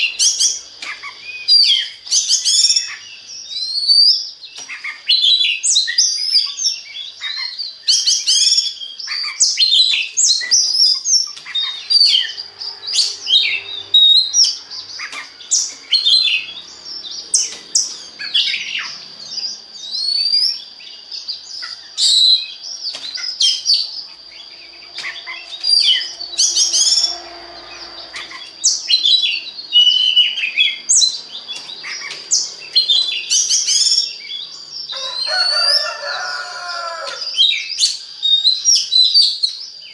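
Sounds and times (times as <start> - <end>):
bird singing whistles and chirps: 0.0 - 39.9.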